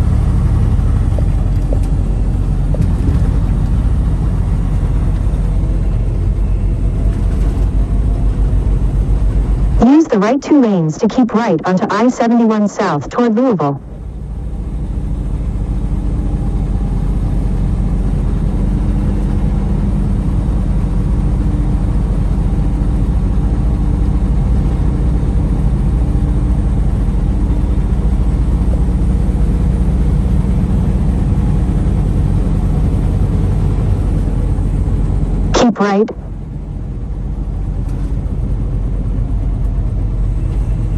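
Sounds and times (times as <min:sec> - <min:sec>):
road noise: 0:00.0 - 0:10.8
truck engine rumble: 0:00.0 - 0:12.0, 0:13.6 - 0:40.9.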